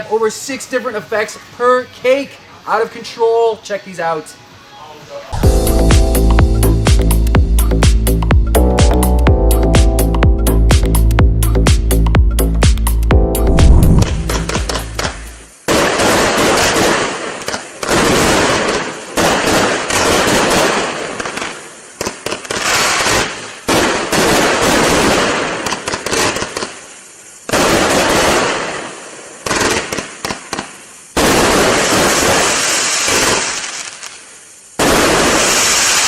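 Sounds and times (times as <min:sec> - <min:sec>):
fireworks firing and bursting: 0:13.5 - 0:36.0.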